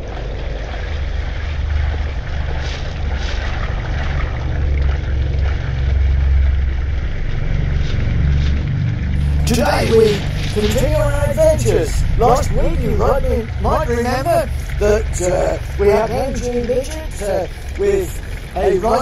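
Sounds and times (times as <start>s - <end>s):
car engine idling: 9.0s - 19.0s.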